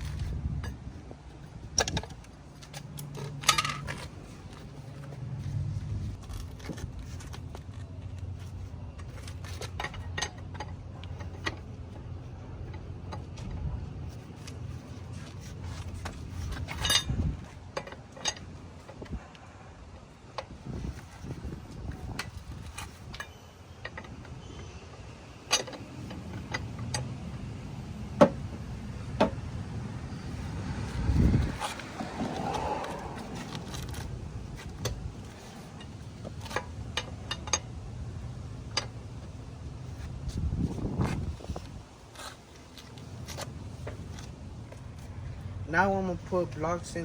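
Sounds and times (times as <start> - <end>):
lug wrench clinking on lug nuts: 1.6 - 5.1, 15.4 - 19.1, 28.1 - 39.4.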